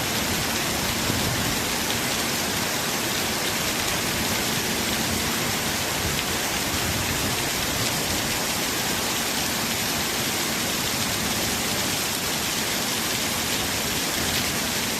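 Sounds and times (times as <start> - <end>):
heavy rain: 0.0 - 14.9.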